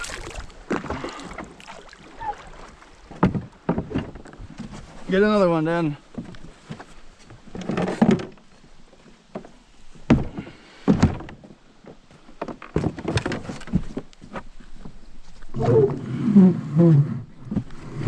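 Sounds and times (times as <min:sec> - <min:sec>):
thunks and knocks on boat hull: 0:03.1 - 0:04.3, 0:10.1 - 0:11.4.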